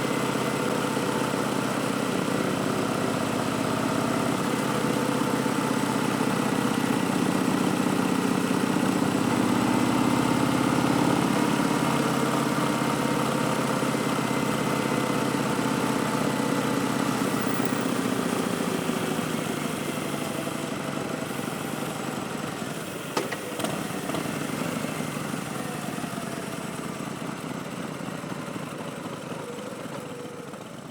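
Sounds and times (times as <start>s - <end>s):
motorcycle engine idling: 0.0s - 30.9s.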